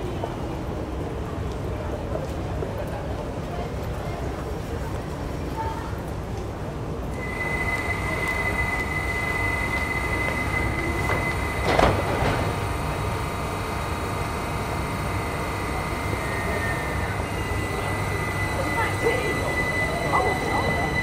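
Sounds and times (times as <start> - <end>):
electric train high-pitched whine: 7.2 - 21.0
train doors closing clunk: 9.5 - 13.4.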